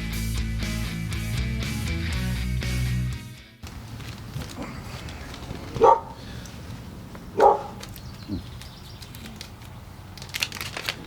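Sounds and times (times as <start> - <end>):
dog barking: 5.7 - 6.2, 7.4 - 7.8.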